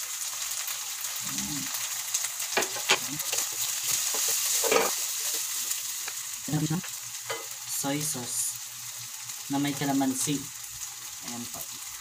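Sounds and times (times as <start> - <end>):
food sizzling in oil: 0.0 - 12.0
spatula scraping a wok: 2.6 - 5.8.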